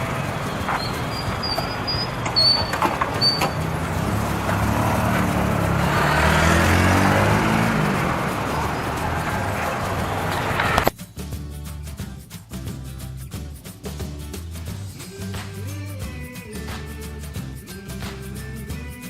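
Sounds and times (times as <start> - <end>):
motor vehicle passing by: 0.0 - 10.9.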